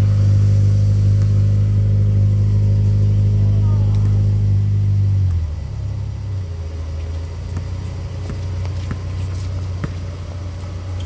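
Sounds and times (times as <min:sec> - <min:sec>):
vehicle engine idling: 0:00.0 - 0:11.0
basketball bouncing: 0:07.5 - 0:11.0.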